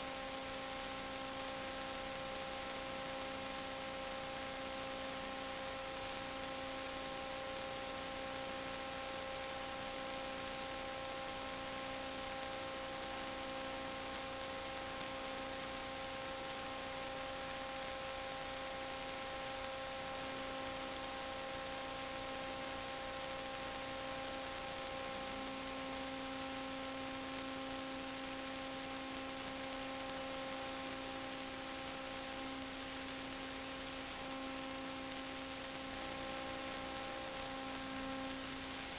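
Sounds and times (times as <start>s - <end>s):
electrical hum with hiss: 0.0s - 38.9s.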